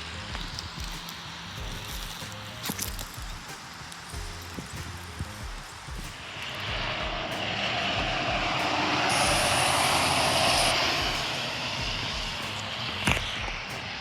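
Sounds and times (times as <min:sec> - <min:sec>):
passing vehicle engine: 0:06.2 - 0:14.0.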